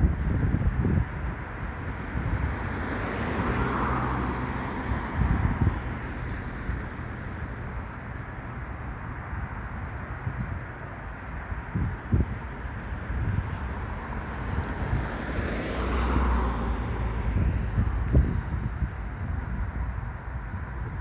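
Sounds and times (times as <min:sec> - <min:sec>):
traffic engine rumble: 0:00.0 - 0:21.0
vehicle passing: 0:02.2 - 0:07.8, 0:13.6 - 0:18.2.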